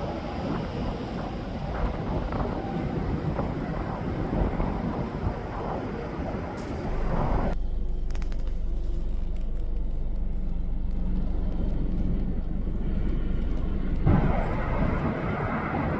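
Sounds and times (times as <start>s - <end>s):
highway traffic: 0.0s - 7.6s
low steady hum: 0.0s - 15.9s.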